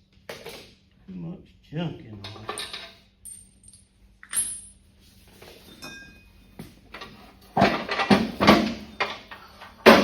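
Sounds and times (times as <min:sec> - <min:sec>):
metal tools clinking and knocking: 0:02.2 - 0:04.8.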